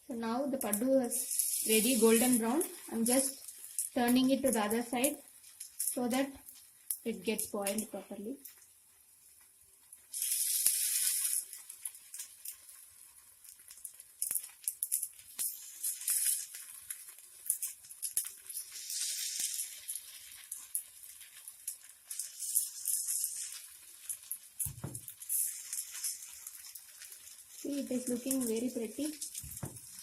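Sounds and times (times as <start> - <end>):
batter sizzling in oil: 0.0 - 30.0.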